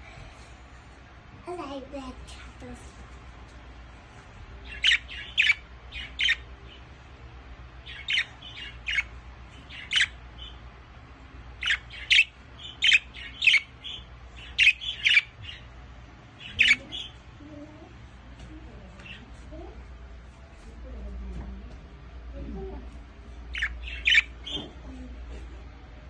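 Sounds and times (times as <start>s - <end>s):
budgerigar calls: 4.6s - 6.5s, 7.8s - 9.1s, 9.7s - 10.6s, 11.6s - 15.7s, 16.4s - 17.2s, 23.5s - 24.6s.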